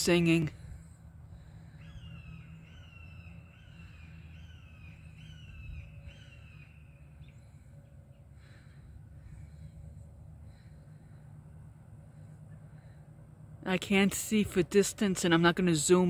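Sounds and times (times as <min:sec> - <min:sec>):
faint low rumble: 0:00.0 - 0:16.0
bird whistling notes: 0:01.7 - 0:07.5.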